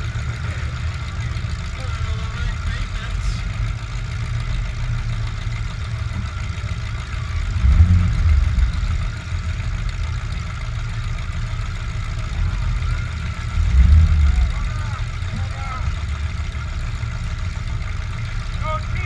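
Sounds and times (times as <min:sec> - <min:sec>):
truck engine rumbling: 0:00.0 - 0:19.0.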